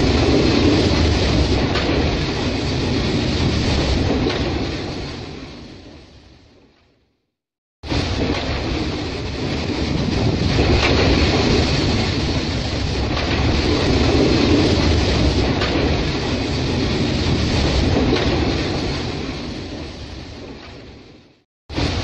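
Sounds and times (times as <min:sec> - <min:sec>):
freight train rumbling past: 0:00.0 - 0:05.9, 0:07.9 - 0:20.6
wheels clacking over rails: 0:08.0 - 0:19.9.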